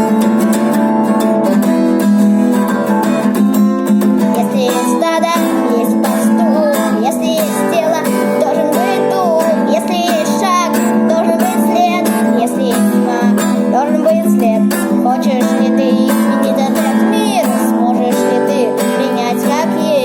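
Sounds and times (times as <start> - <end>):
acoustic guitar strumming: 0.0 - 20.0
wordless singing: 4.2 - 20.0.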